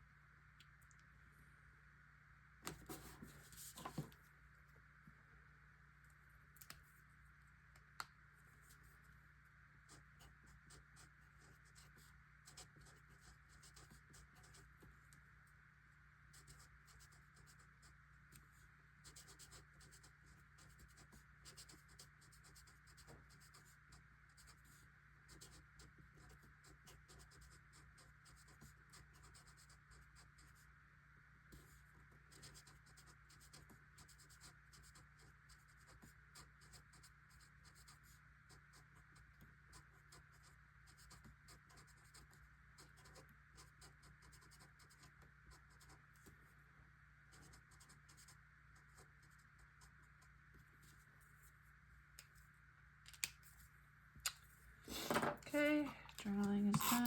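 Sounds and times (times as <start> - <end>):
background hum: 0.0 - 57.0
pen scratching on paper: 9.9 - 14.8, 16.3 - 18.0, 19.0 - 30.6, 31.5 - 46.0, 47.3 - 51.0, 56.7 - 57.0.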